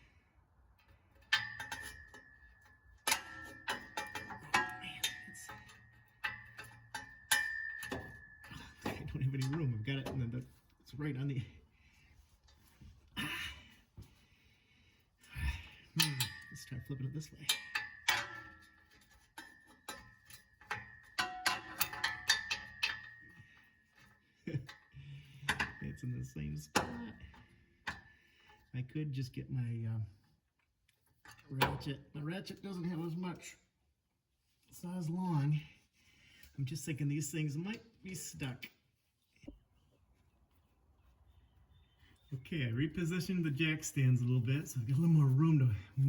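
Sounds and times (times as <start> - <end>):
steel tools knocking on exhaust pipe: 1.2 - 10.4, 16.0 - 23.4.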